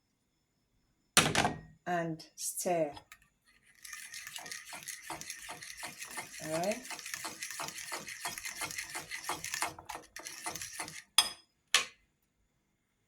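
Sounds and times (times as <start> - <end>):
utensil stirring batter in bowl: 2.9 - 11.4.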